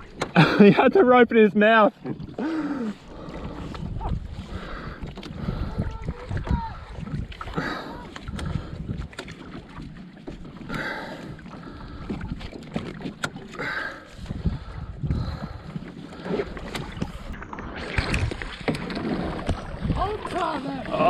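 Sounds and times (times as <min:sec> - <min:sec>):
water splashing against kayak hull: 0:00.0 - 0:21.0
wind on microphone: 0:03.1 - 0:09.8, 0:14.2 - 0:21.0.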